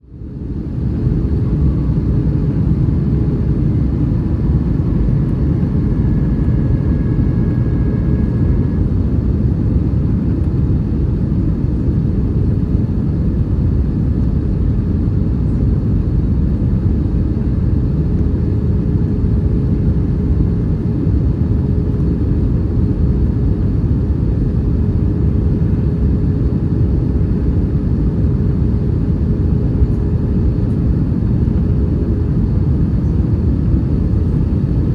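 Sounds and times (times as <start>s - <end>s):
airplane cabin engine rumble: 0.0s - 34.9s
faint constant hum: 0.1s - 34.9s.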